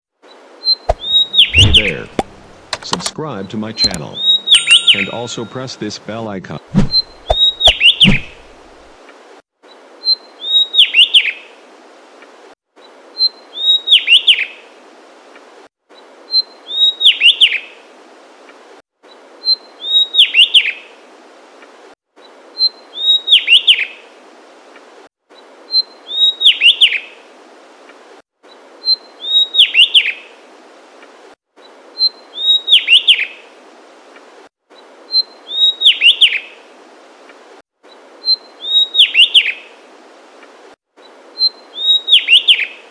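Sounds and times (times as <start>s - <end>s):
bird song phrase: 1.0s - 2.2s, 3.5s - 6.2s.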